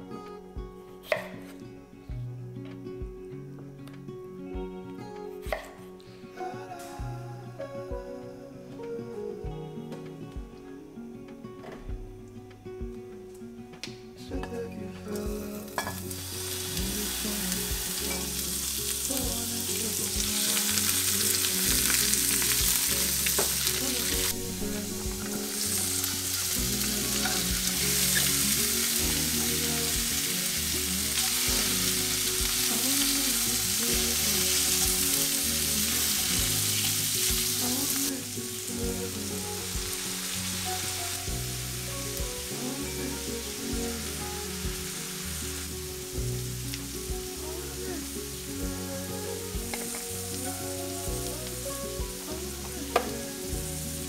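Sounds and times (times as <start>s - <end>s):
vegetables sizzling in a frying pan: 15.6s - 54.0s.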